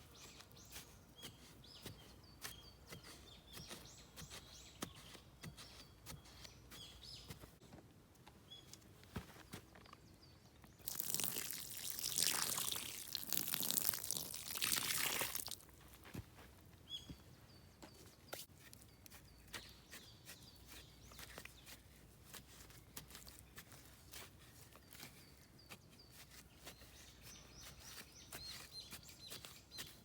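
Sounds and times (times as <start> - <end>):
water hissing on embers: 10.8 - 15.6
light knocks and crunches: 13.1 - 25.3.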